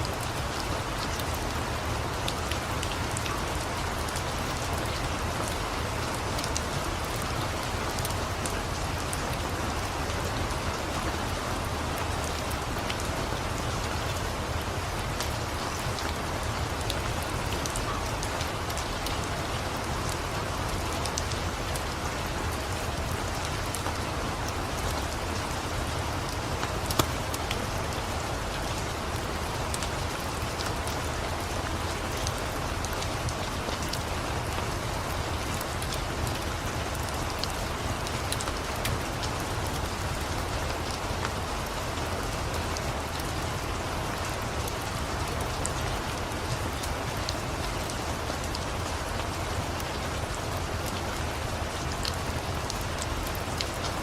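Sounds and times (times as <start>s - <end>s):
steady rain: 0.0s - 54.0s
wood fire crackling: 26.6s - 27.5s.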